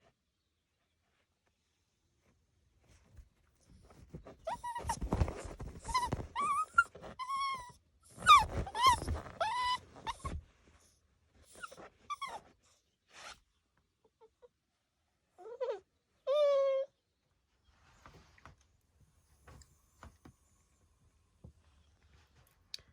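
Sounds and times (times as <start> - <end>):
puppy whining yelps: 4.4 - 10.4, 11.5 - 12.6, 15.4 - 17.0.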